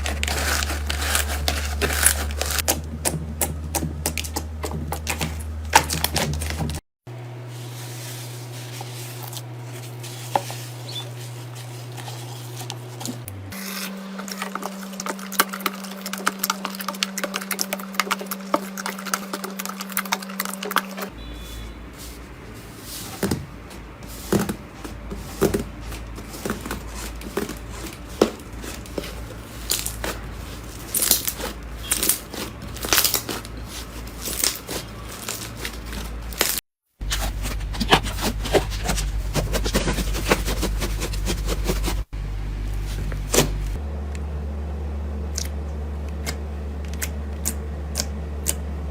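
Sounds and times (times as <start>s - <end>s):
slime squishing and popping: 28.2s - 33.6s.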